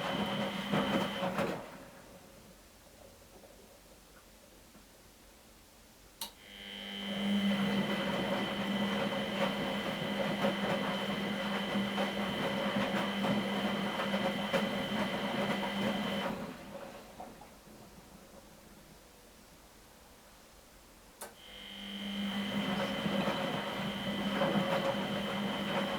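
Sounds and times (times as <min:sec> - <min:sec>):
washing machine motor hum and whine: 0:00.0 - 0:02.6, 0:06.4 - 0:19.2, 0:21.2 - 0:25.9
water sloshing in washer: 0:07.8 - 0:18.3, 0:22.6 - 0:25.9.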